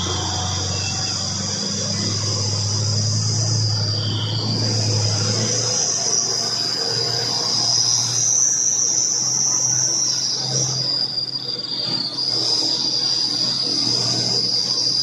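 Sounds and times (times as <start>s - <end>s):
truck engine humming: 0.0s - 7.2s
shrill insect chorus: 0.0s - 15.0s.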